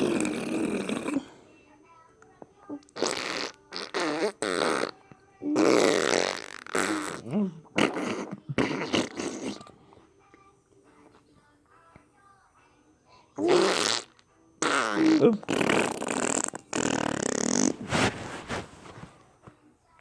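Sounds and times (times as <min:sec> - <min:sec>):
person making fart noises: 0:00.0 - 0:01.3, 0:02.9 - 0:09.8, 0:13.4 - 0:19.0.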